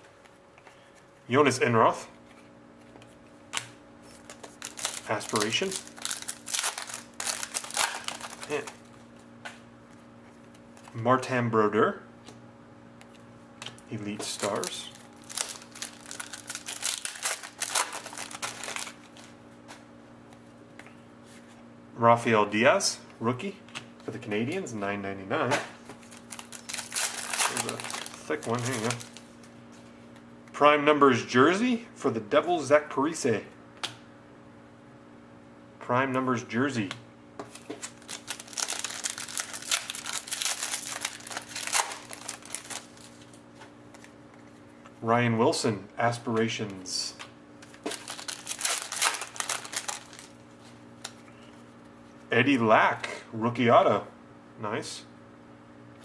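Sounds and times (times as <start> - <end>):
faint steady hum: 0.0 - 56.0
trading cards rustling: 4.1 - 8.9, 14.0 - 19.3, 26.0 - 29.5, 37.5 - 44.6, 47.6 - 51.3
plastic wrapping crinkling: 4.1 - 9.0, 14.2 - 19.4, 26.0 - 29.6, 37.5 - 44.2, 47.6 - 51.3.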